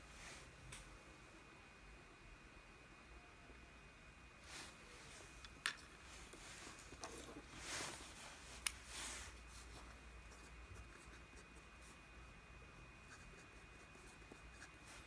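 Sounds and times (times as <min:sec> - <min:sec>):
faint rubbing or scratching: 0:04.4 - 0:12.0.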